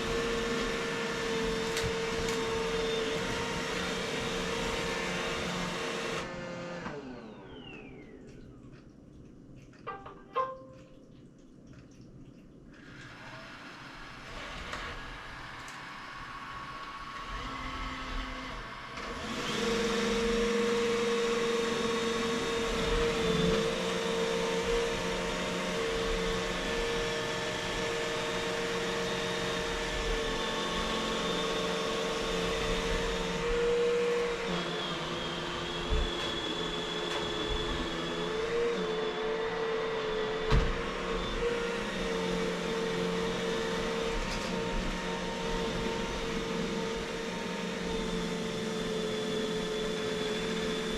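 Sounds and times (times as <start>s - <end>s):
vacuum cleaner motor whine: 0.0s - 8.3s, 12.8s - 50.9s.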